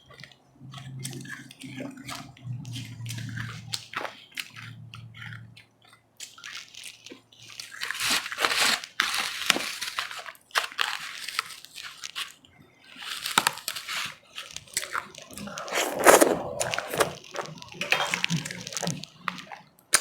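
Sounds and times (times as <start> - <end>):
chewing crunchy ice: 14.5 - 20.0.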